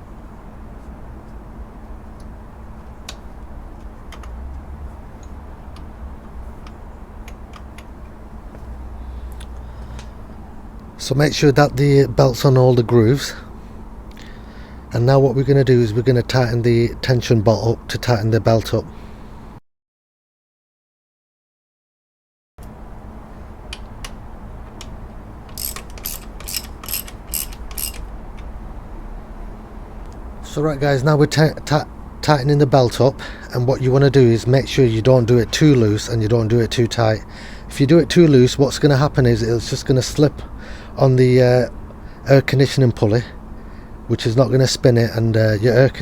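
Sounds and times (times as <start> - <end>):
ratchet wrench clicking: 25.5 - 28.1.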